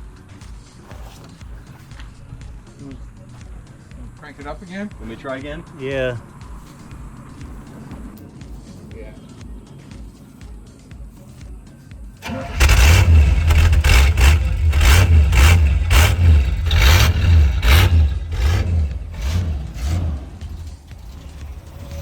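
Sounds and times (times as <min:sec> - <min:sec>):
engine revving unevenly: 0:12.2 - 0:22.0
pickup engine cranking: 0:12.2 - 0:22.0.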